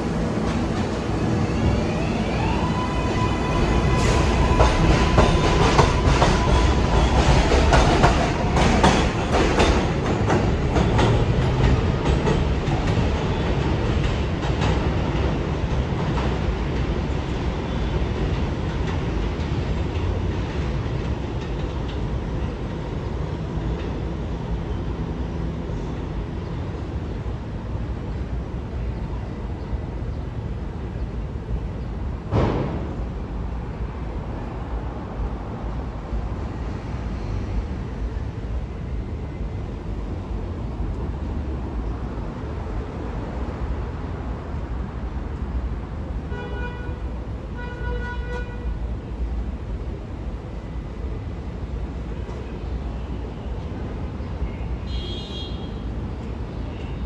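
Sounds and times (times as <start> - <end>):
train propulsion whine: 0.0 - 14.7
train running rumble: 0.0 - 54.9.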